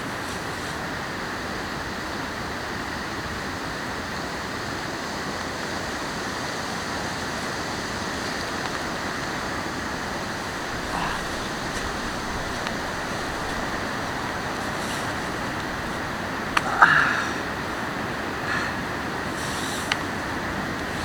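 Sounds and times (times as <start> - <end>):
steady rushing noise: 7.4 - 18.5.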